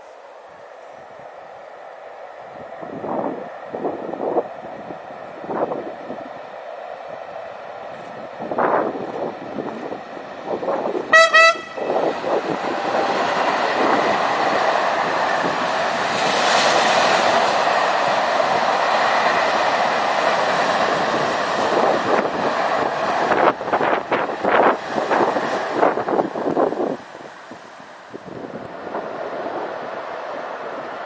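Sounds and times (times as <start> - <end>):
freight wagons rolling on rail: 0.0 - 31.0
locomotive horn blast: 11.1 - 12.1.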